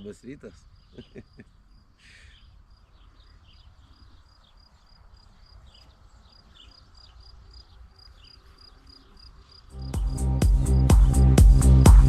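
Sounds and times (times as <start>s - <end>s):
cricket chirping: 0.0s - 11.9s
short falling bird calls: 0.6s - 4.7s
loud electronic music: 9.8s - 12.0s.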